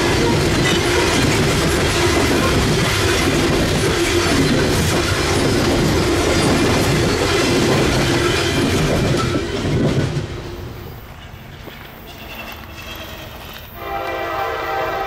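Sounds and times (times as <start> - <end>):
freight train wheels clattering: 0.0 - 13.8.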